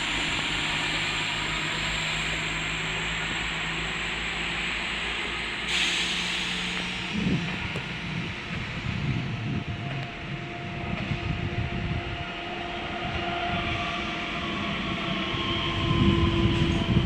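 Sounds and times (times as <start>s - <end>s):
train hiss: 0.0s - 10.4s.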